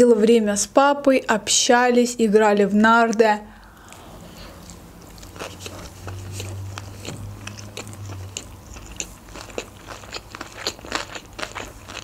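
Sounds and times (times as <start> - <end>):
chewing with wet clicks: 3.1 - 12.0.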